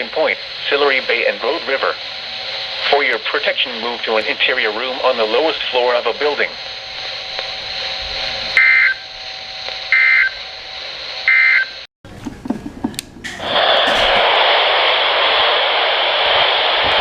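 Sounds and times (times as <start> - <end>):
loud radio static: 0.0 - 11.8, 13.4 - 17.0
radio hiss: 0.0 - 11.8, 13.4 - 17.0
warbling data tones: 0.7 - 11.8.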